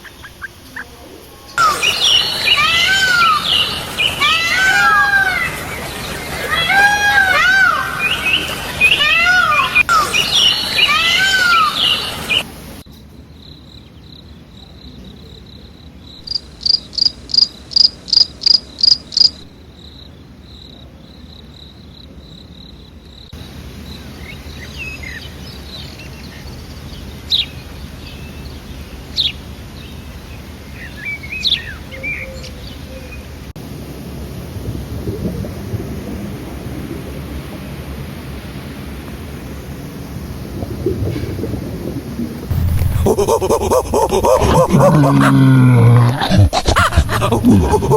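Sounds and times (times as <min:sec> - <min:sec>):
high insect-like tone: 0:16.2 - 0:19.4
loud animal calls: 0:42.5 - 0:47.9.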